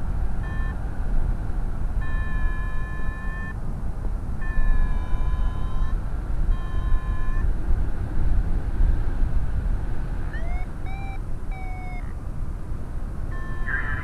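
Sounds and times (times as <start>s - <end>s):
short steady tone: 10.4s - 12.1s, 13.3s - 14.0s.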